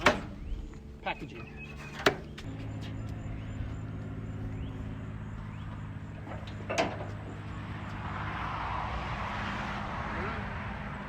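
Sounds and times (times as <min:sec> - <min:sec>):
engine idling: 0:00.0 - 0:08.1.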